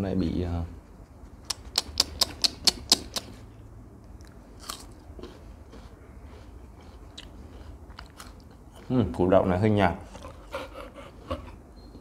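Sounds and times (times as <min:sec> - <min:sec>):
crisp crunches of chewing: 0:04.2 - 0:08.9.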